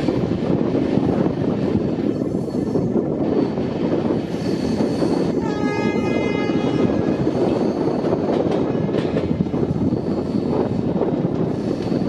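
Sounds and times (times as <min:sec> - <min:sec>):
train wheels rumbling on rail: 0:00.0 - 0:12.0
train horn: 0:05.4 - 0:07.9.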